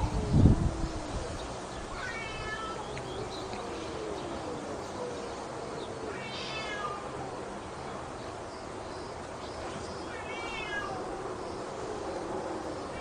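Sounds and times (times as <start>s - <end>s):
cats yowling: 1.9s - 7.6s, 10.0s - 13.0s.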